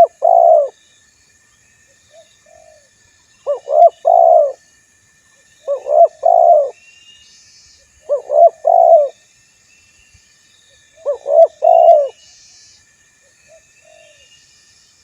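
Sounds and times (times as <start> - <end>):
dove cooing: 0.0 - 0.8, 3.5 - 4.6, 5.7 - 6.8, 8.1 - 9.2, 11.0 - 12.2.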